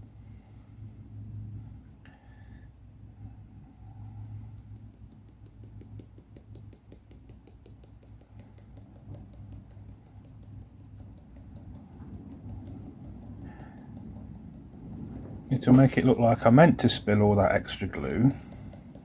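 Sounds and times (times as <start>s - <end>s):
steady low hum: 0.0s - 19.0s
grout powder ticking and pattering: 4.5s - 19.0s.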